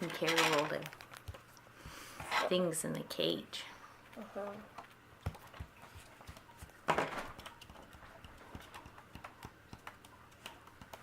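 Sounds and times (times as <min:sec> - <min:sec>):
bird beak and claws tapping: 0:04.8 - 0:11.0.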